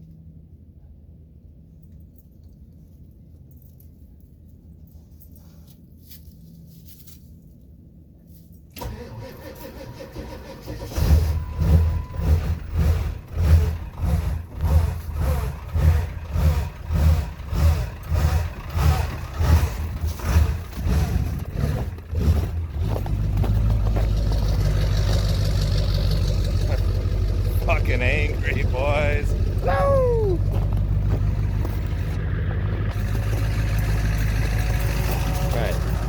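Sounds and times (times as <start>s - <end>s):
truck engine cranking and starting: 8.7s - 36.0s.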